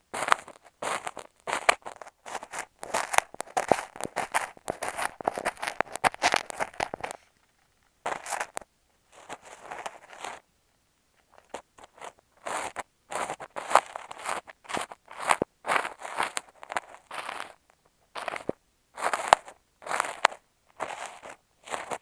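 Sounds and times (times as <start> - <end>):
kinetic sand crunching and scraping: 0.2 - 7.2, 18.2 - 22.0.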